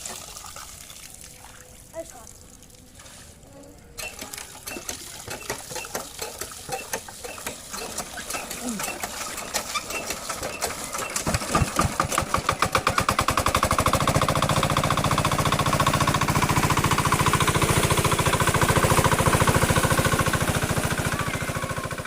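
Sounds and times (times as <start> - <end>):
diesel pump engine starting: 3.9 - 22.0.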